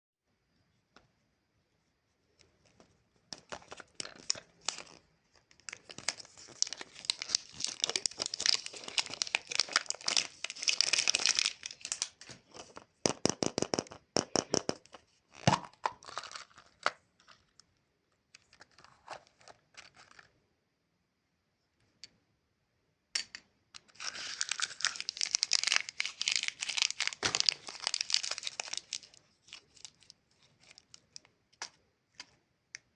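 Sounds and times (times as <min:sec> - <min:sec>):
plastic wrapper crinkling and tearing: 0:03.4 - 0:12.8, 0:15.5 - 0:17.4, 0:23.8 - 0:32.3.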